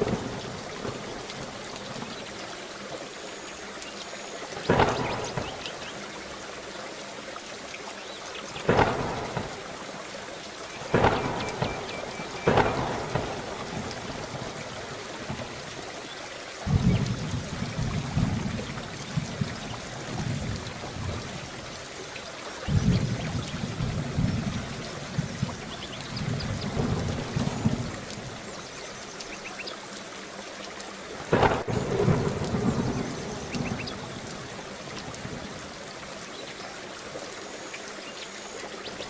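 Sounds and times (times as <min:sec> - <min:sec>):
heavy rain: 0:00.0 - 0:39.0
thunder cracks and rumbles: 0:04.7 - 0:05.9, 0:08.6 - 0:09.7, 0:10.9 - 0:14.6, 0:16.7 - 0:21.3, 0:22.6 - 0:28.4, 0:31.3 - 0:34.5.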